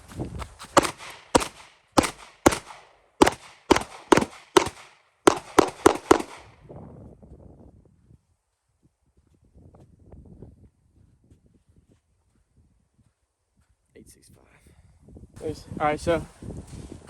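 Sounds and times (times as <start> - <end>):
pistol shots: 0.6 - 6.6.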